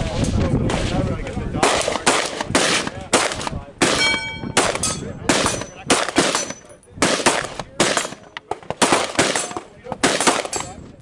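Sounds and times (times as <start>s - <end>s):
gunshots: 1.6s - 10.8s
metallic ringing: 4.0s - 6.9s.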